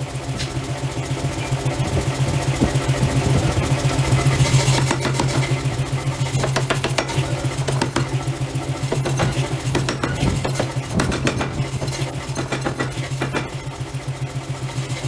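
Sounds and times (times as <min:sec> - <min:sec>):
forging machinery pulsing hum: 0:00.0 - 0:15.0
metallic knocks and clicks: 0:04.6 - 0:13.8.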